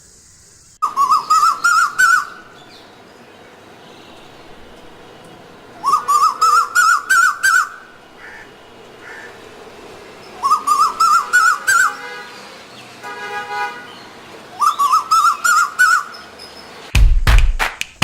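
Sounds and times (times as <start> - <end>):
bird whistling rising notes: 0.8 - 2.8, 5.8 - 8.5, 10.2 - 11.9, 14.6 - 16.2.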